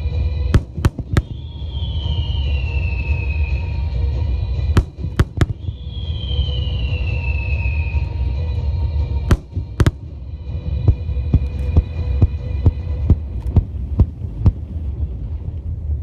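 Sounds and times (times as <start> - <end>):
steady low rumble: 0.0 - 16.0
fireworks bursting with bangs: 0.5 - 3.2, 4.7 - 6.2, 9.3 - 10.2, 10.9 - 14.8
small firework pops: 0.6 - 1.8, 4.8 - 5.9, 9.3 - 10.2
falling whistling tone: 1.2 - 4.0, 5.0 - 8.2.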